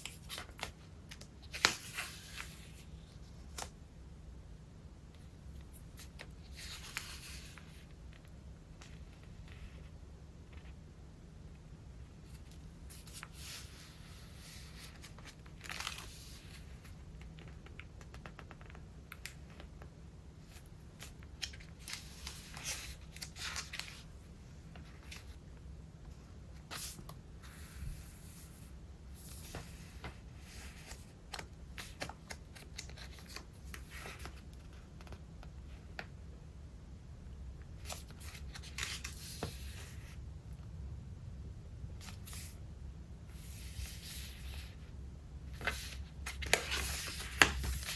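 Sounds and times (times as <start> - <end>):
paper pages rustling: 0.0 - 3.7, 20.4 - 25.4, 45.6 - 47.9.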